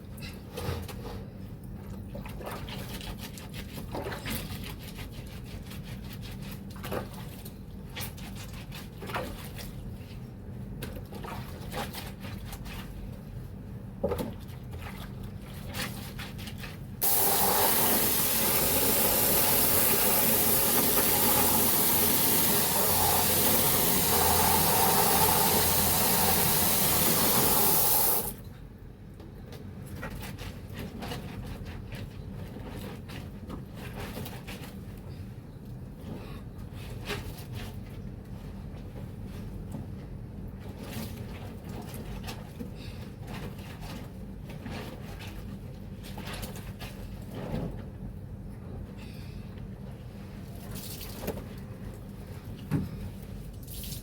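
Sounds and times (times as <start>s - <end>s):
water pouring into container: 17.0s - 28.4s
wet laundry splashing: 17.0s - 28.4s, 53.5s - 54.0s.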